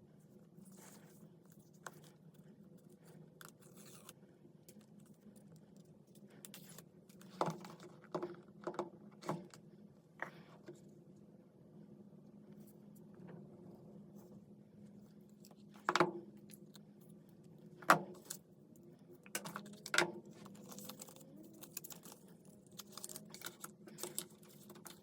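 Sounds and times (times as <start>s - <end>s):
faint steady hum: 0.0s - 25.0s
packaging scratching and tearing: 3.5s - 4.2s, 20.4s - 25.0s.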